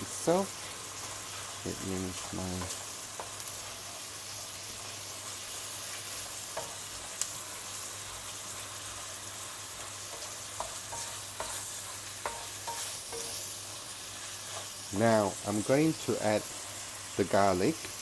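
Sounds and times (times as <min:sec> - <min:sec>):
food sizzling in frying pan: 0:00.0 - 0:18.0
utensil clicking against pan: 0:09.8 - 0:13.5.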